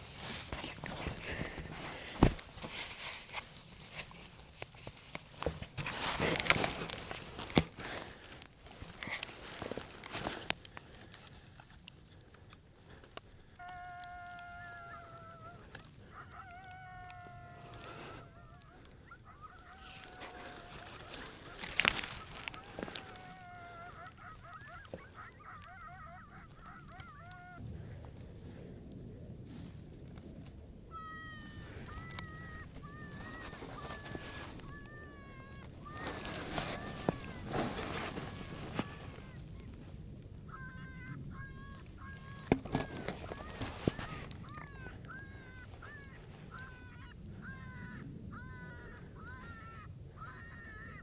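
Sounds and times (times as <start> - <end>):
clothing and gear rustling: 0.0 - 13.6, 17.3 - 25.6, 31.8 - 40.0, 42.2 - 44.8
coyote yipping: 11.0 - 28.0, 30.8 - 51.0.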